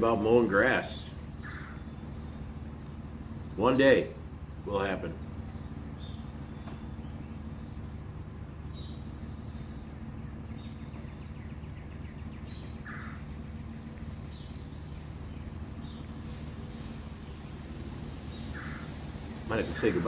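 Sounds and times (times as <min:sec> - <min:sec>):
small bird chirping: 0:05.2 - 0:20.0.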